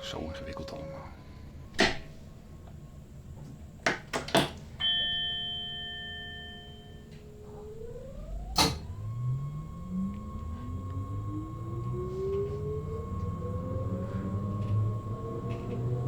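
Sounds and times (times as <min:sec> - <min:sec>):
ringing chime tone: 0:04.8 - 0:08.4
electric whine rising in pitch: 0:06.8 - 0:16.0
cab switches clicking: 0:08.5 - 0:09.0.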